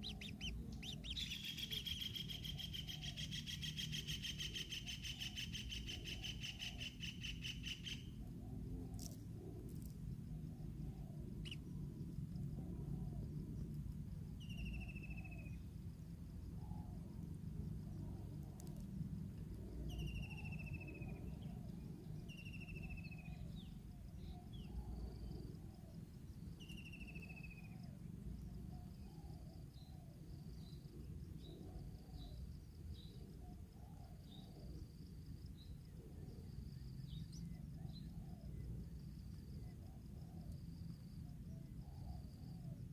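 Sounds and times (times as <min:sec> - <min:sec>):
short bird chirps: 0:00.0 - 0:05.3
buzzy bird calls: 0:00.0 - 0:08.2
high insect hum: 0:00.0 - 0:42.9.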